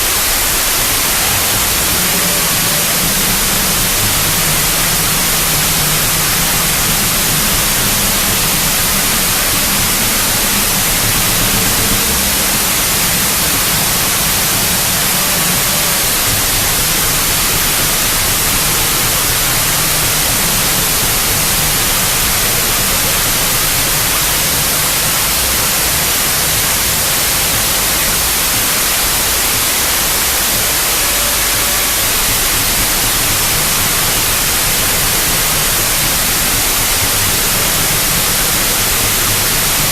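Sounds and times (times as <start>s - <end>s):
rough low rumbling: 0.0s - 29.4s
loud static hiss: 0.0s - 39.9s.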